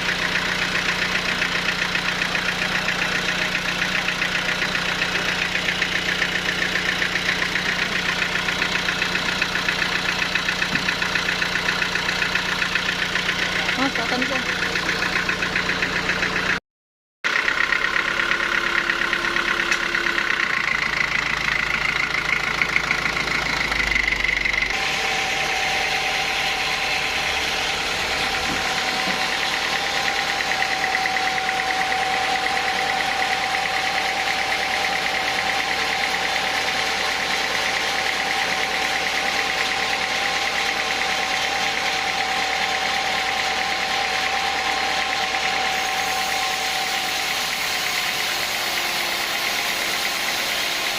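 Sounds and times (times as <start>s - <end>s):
sawmill machinery drone: 0.0s - 16.5s, 17.4s - 50.9s
machinery whine: 18.0s - 50.9s.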